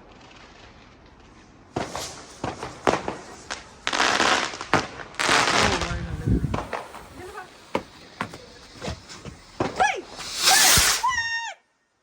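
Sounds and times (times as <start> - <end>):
firework cracks: 0.0 - 11.5
firework rushing hisses: 0.1 - 11.5.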